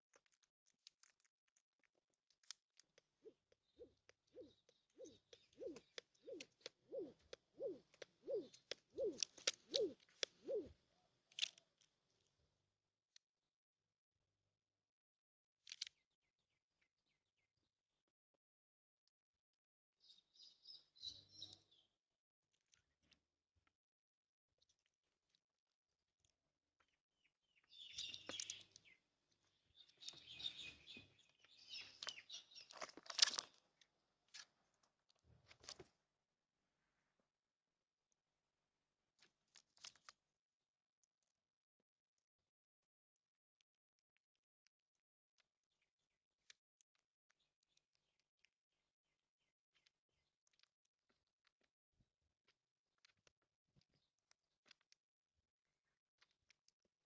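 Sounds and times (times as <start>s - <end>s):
bird hooting low notes: 3.2s - 11.1s.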